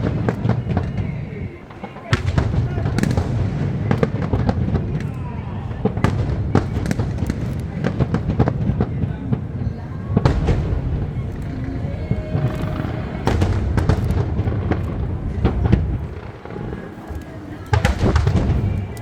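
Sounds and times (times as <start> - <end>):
fireworks bangs: 0.0 - 19.0
low rumble: 10.2 - 17.5.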